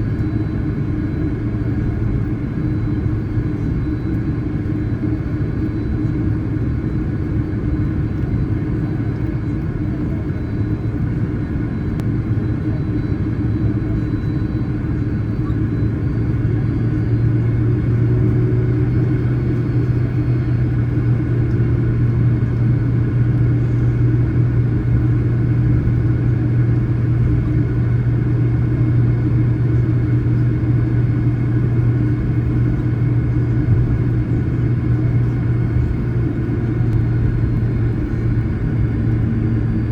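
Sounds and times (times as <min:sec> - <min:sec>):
jet engine rumble in cabin: 0:00.0 - 0:39.9.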